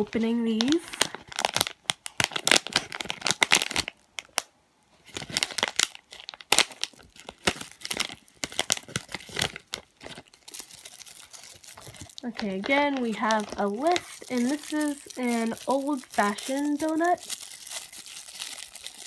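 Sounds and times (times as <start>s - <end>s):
plastic packaging crinkling: 0.0s - 19.0s
plastic being torn open: 0.5s - 19.0s.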